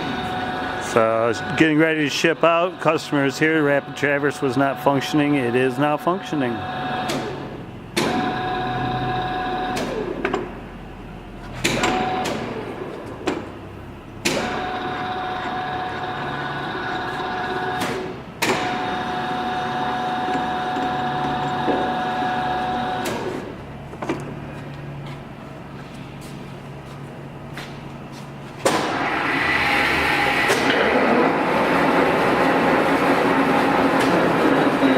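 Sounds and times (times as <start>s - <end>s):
lathe motor whining: 0.0s - 23.8s, 28.8s - 34.9s
motor switching clunk: 6.6s - 10.6s, 11.4s - 24.4s, 28.6s - 34.9s.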